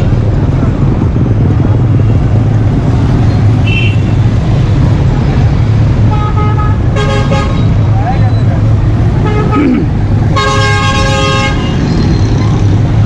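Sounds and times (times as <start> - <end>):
traffic engine rumble: 0.0 - 13.0
vehicle horns honking: 3.6 - 4.2, 6.1 - 7.8, 9.2 - 12.3.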